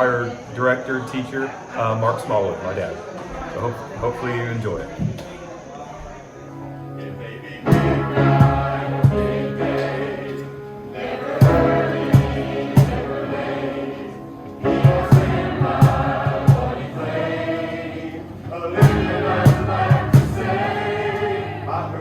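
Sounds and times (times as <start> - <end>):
choir singing gospel song: 6.1 - 22.0
percussive hits: 18.8 - 20.5.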